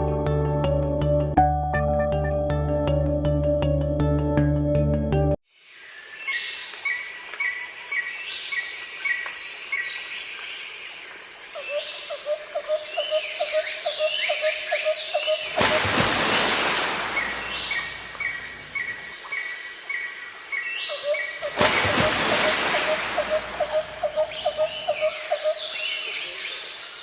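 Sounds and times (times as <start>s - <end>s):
birds calling: 11.6s - 26.8s.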